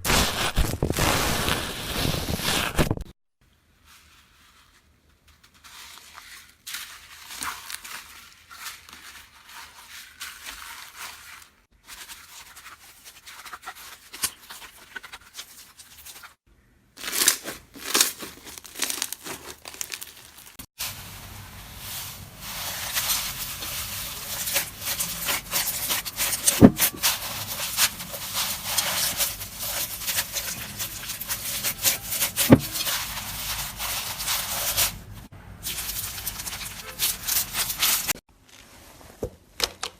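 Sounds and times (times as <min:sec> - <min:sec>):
hands squishing slime: 0:17.0 - 0:20.6
slime crackling and popping: 0:17.0 - 0:20.6.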